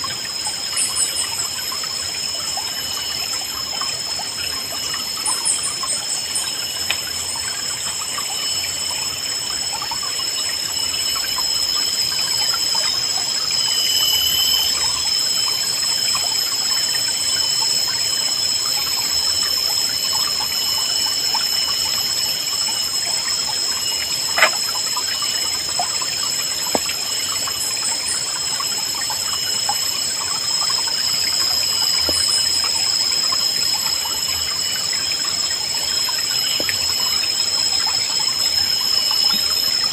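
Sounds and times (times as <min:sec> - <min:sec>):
high-pitched ringing tone: 0:00.0 - 0:39.9
river babbling over stones: 0:23.5 - 0:38.4
bird chirps: 0:23.8 - 0:25.4
sharp click: 0:24.4 - 0:24.7.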